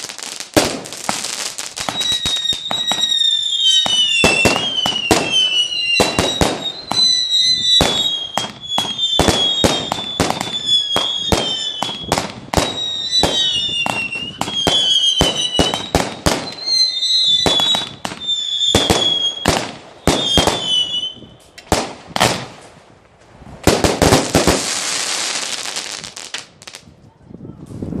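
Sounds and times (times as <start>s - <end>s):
firework bangs: 0.0s - 26.9s
hissing crackle of fireworks: 0.0s - 26.9s
firework whistles: 0.7s - 21.6s.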